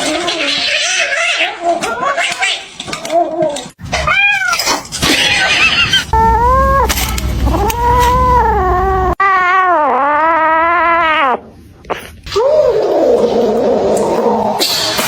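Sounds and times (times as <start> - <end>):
cat yowling: 4.0 - 11.4.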